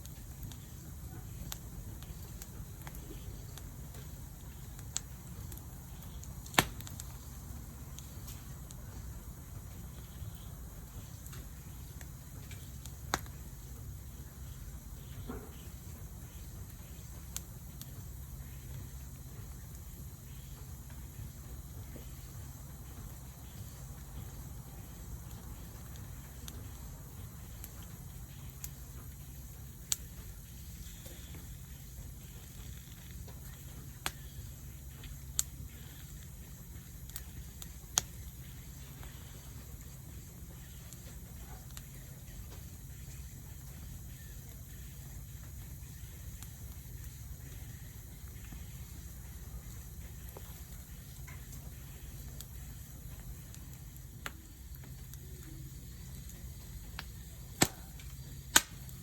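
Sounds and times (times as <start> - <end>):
faint hiss: 0.0 - 59.0
steady low rumble: 0.0 - 59.0
wood fire crackling: 0.0 - 59.0
sharp pops: 4.9 - 7.1, 57.0 - 59.0.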